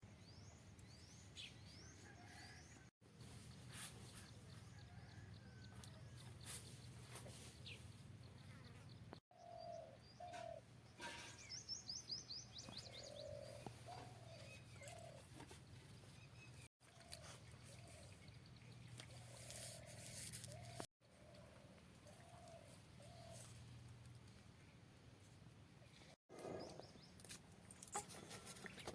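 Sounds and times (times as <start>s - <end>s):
birds calling: 6.2s - 23.6s.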